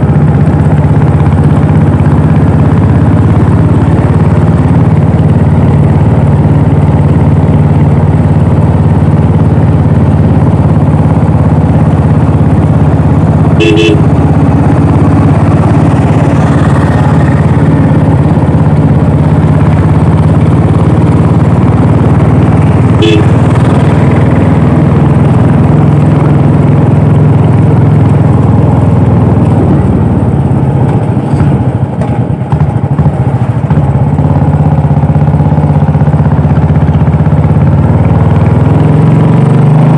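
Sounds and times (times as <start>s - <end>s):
motorcycle engine running: 0.0s - 39.9s
vehicle horn tooting: 13.5s - 14.2s, 23.0s - 23.5s.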